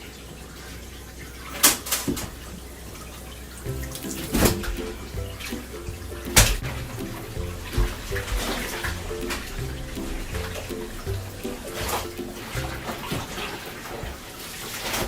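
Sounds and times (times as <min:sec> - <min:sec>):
water splashing in bathtub: 0:00.0 - 0:15.0
background music: 0:03.6 - 0:14.2.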